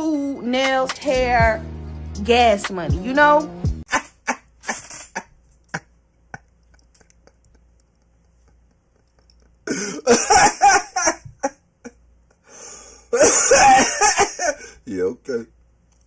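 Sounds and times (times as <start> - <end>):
person coughing: 9.6 - 11.2, 13.1 - 14.7.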